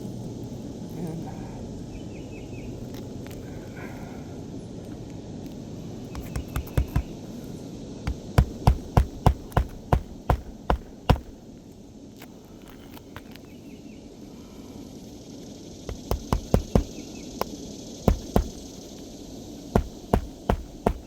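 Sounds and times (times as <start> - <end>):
hammer driving nails into shingles: 6.2 - 7.2, 8.1 - 11.4, 15.9 - 17.0, 18.1 - 18.6, 19.8 - 21.0.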